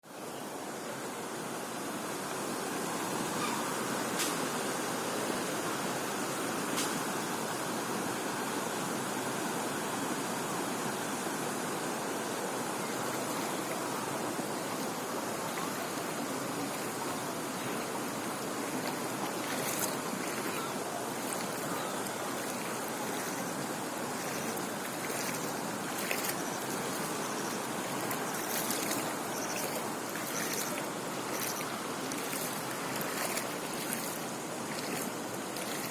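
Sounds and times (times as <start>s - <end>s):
floodwater rushing: 11.8s - 35.9s.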